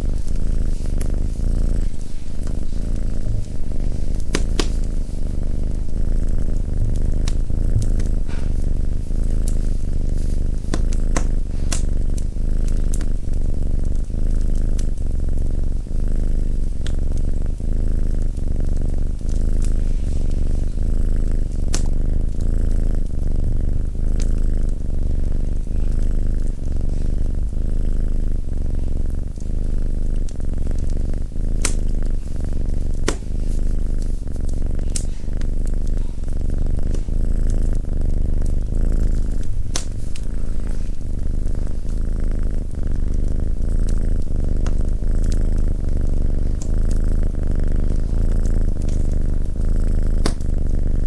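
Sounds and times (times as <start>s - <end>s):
wood fire crackling: 0.0s - 13.1s, 27.3s - 50.4s
cat purring: 0.0s - 51.0s.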